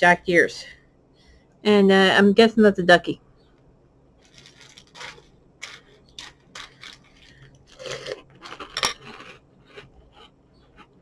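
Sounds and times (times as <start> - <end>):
cereal rustling in a bowl: 4.2 - 9.4.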